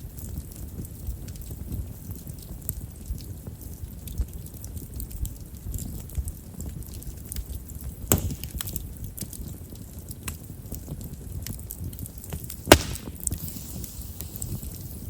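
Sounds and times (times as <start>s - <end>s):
low rumble of flame: 0.0s - 15.0s
small fire crackles: 0.0s - 15.0s
sharp wood pops: 8.1s - 8.7s, 12.6s - 13.4s.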